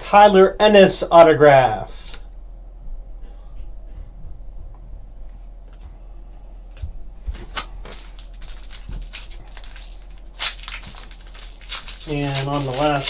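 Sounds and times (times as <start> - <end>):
cards being handled: 7.3 - 13.0
wrapper crinkling and tearing: 7.4 - 13.0.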